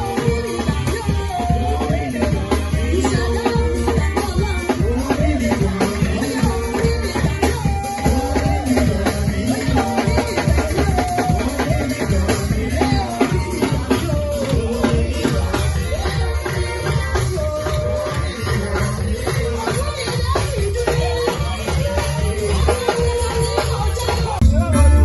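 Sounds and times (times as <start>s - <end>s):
person singing: 0.0s - 25.0s
steady drumming: 0.0s - 25.0s.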